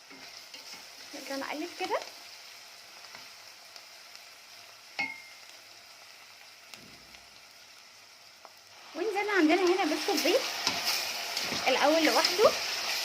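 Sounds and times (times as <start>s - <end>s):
vegetables sizzling in oil: 0.0s - 13.0s
sharp clink against pot: 5.0s - 5.3s.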